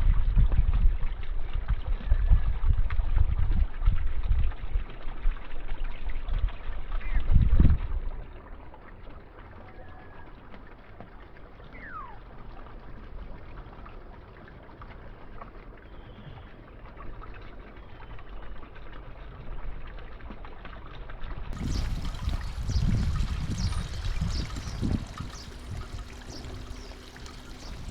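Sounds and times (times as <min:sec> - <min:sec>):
trickle of running water: 0:00.1 - 0:27.9
faint bird calls: 0:21.6 - 0:27.9.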